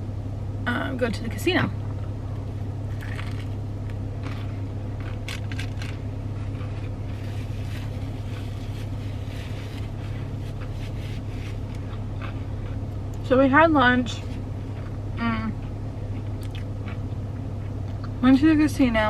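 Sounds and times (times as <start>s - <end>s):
steady low hum: 0.0s - 19.0s
chewing and crunching food: 2.9s - 13.2s, 14.2s - 18.2s.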